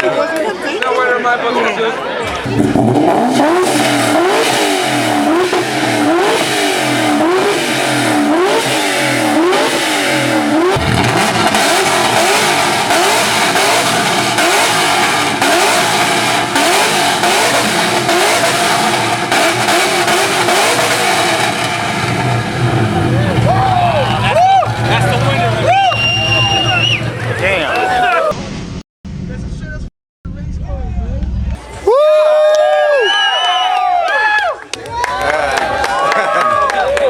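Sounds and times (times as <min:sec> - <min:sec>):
car engine revving: 0:02.2 - 0:28.3.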